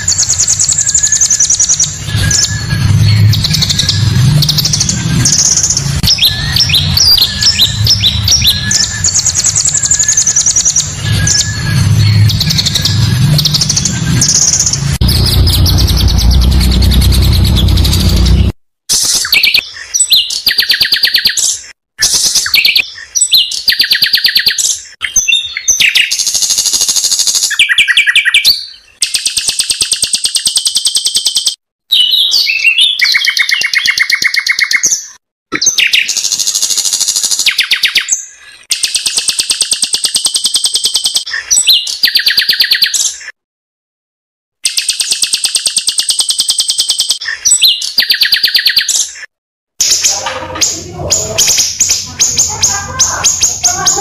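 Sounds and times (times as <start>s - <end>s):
bird song fast trills: 0.0s - 43.3s, 44.6s - 50.8s
low rumble: 2.0s - 18.6s.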